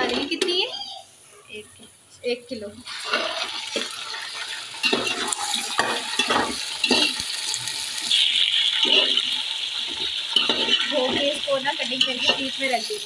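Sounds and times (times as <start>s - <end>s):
chicken sizzling in hot oil: 2.8s - 13.0s
metal spoon scraping pot: 2.9s - 7.2s, 8.1s - 12.8s.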